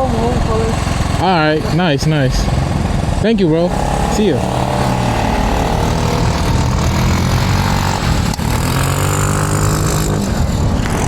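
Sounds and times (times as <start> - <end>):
motorcycle engine idling: 0.0 - 8.5.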